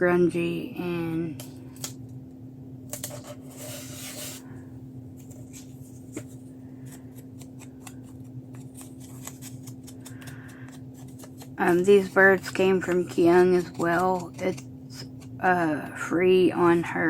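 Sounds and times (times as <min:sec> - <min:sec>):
steady low hum: 0:00.0 - 0:17.0
paper rustling: 0:02.9 - 0:04.4, 0:05.2 - 0:15.2.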